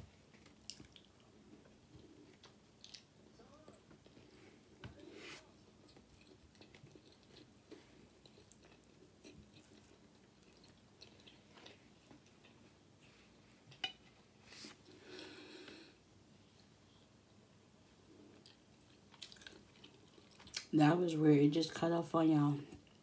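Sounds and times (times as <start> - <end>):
faint chewing: 0.2 - 13.4, 18.1 - 20.7.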